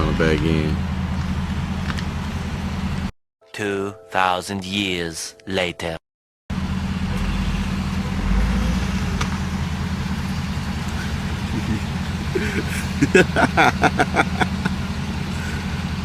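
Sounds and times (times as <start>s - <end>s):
voices: 0.0s - 0.8s, 10.8s - 16.0s
car engine idling: 0.0s - 3.1s, 6.5s - 16.0s.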